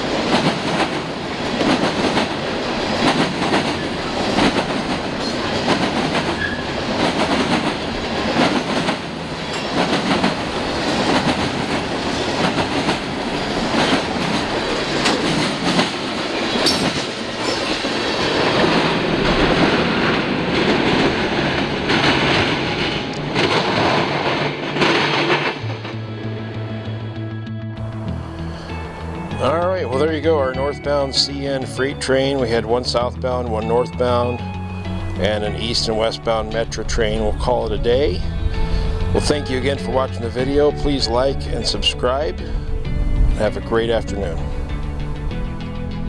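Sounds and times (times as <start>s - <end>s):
wheels clanking over rail joints: 0.0s - 26.0s
freight train wheels rumbling: 0.0s - 27.2s, 27.8s - 46.0s.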